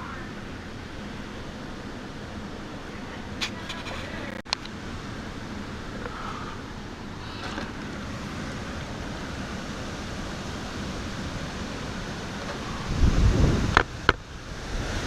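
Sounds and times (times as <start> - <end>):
strong wind gusting: 0.0 - 15.0
wind buffeting microphone: 0.0 - 15.0.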